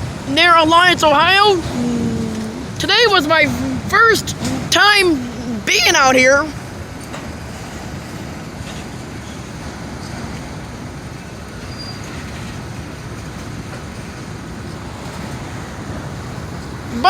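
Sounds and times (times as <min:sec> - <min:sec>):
train wheels rumbling on rails: 0:00.0 - 0:17.0
high wheel squeal: 0:11.6 - 0:12.5.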